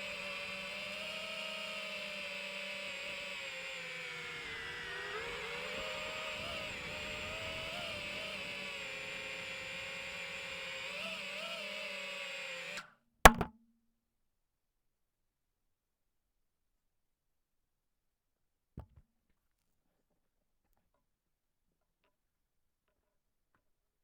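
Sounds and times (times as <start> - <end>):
drone propellers whirring: 0.0 - 12.8.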